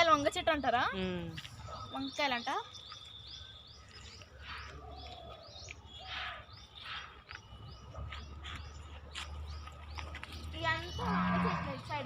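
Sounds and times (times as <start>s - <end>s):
birds chirping: 0.0s - 12.0s
lower gliding bird calls: 1.7s - 9.1s.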